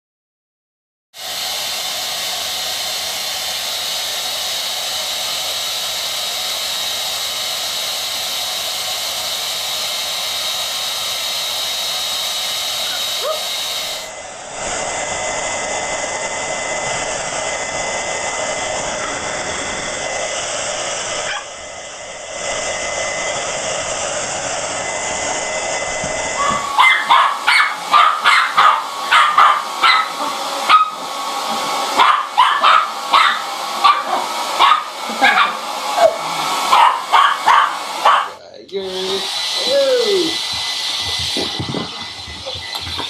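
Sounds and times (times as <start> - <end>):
hair dryer blowing: 1.2 - 43.0
dog barking: 12.8 - 13.6, 21.2 - 21.5, 26.4 - 31.1, 31.9 - 38.4.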